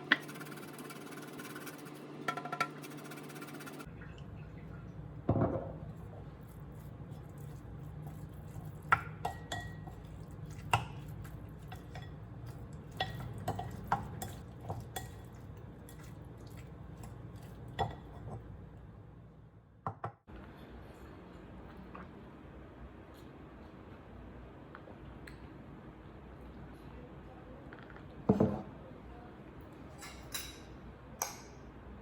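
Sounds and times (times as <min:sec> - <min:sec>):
dishes and cutlery clinking: 0:29.9 - 0:31.6.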